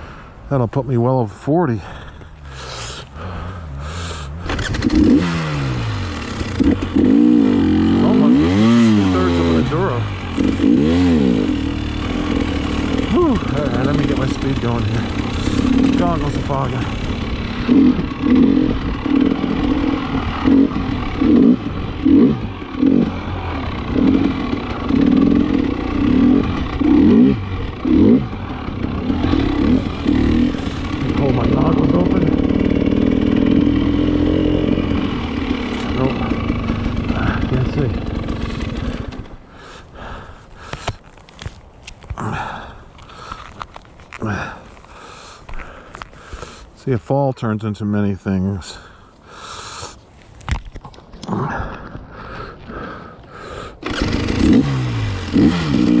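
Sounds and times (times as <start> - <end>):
person breathing heavily: 0.0 - 0.5, 1.7 - 4.5, 29.8 - 31.1, 38.4 - 41.1, 42.2 - 43.6, 44.2 - 46.8, 48.7 - 50.2, 51.3 - 53.8
two-stroke dirt bike engine revving: 2.2 - 40.8, 44.2 - 46.6, 52.8 - 56.0.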